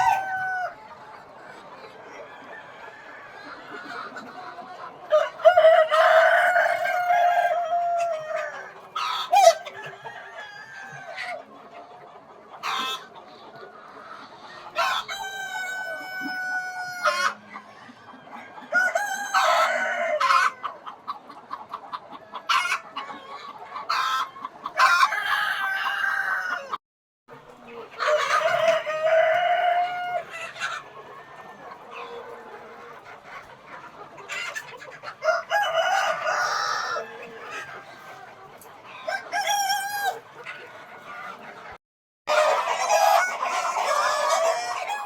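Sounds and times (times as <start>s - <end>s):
roosters crowing: 0.0s - 0.9s, 5.1s - 11.4s, 14.8s - 20.8s, 23.9s - 26.8s, 28.0s - 32.5s, 35.1s - 37.9s, 39.0s - 40.2s, 42.3s - 45.0s
chickens clucking: 0.0s - 45.0s.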